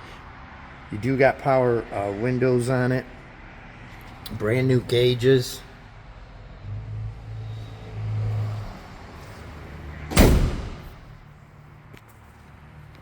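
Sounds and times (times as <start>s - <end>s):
truck door slamming: 10.1s - 11.2s.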